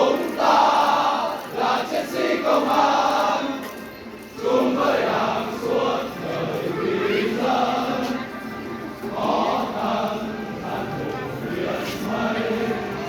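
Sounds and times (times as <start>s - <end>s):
crowd singing in unison: 0.0s - 13.0s.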